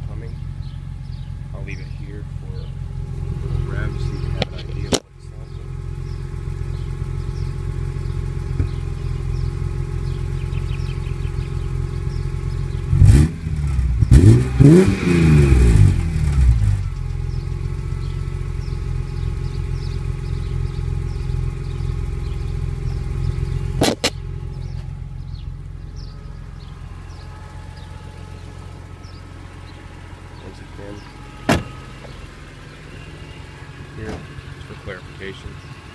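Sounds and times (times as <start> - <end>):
car engine idling and revving: 0.0 - 35.9
single sharp click: 23.8 - 24.2.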